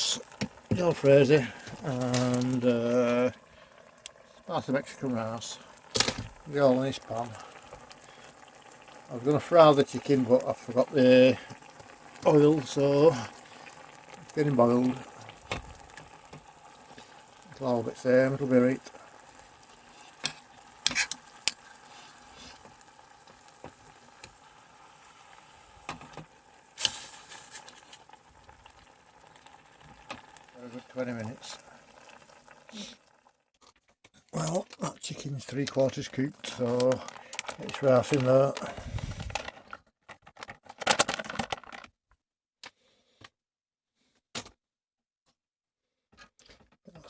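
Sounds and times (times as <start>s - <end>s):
curry sauce bubbling in a pan: 0.0s - 33.5s, 34.4s - 39.4s
utensil scraping and clinking a pan: 20.2s - 21.6s.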